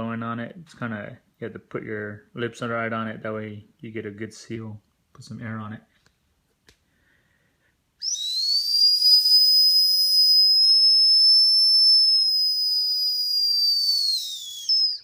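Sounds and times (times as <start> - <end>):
high-pitched whistle blown: 8.0 - 15.0.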